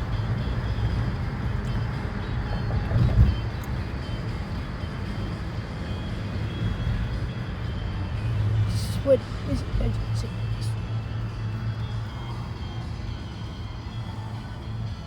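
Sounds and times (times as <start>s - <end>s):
car cabin engine and road rumble: 0.0s - 15.0s.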